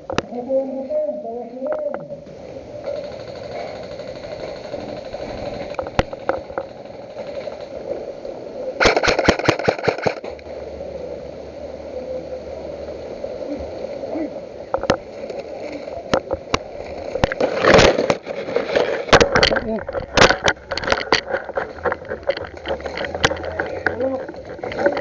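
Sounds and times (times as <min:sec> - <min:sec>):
low hum: 0:00.0 - 0:25.0
airsoft guns firing: 0:02.8 - 0:07.8, 0:08.8 - 0:10.3.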